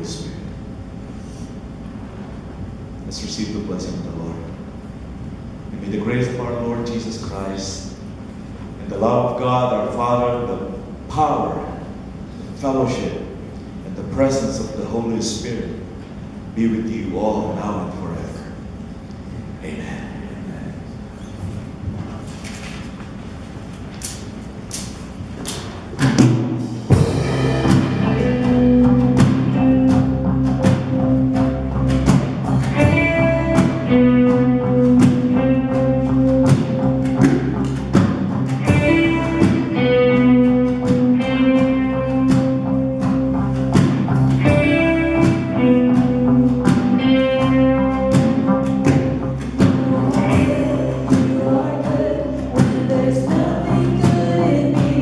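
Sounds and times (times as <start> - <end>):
worship band playing: 25.8 - 55.0
people singing: 50.2 - 55.0.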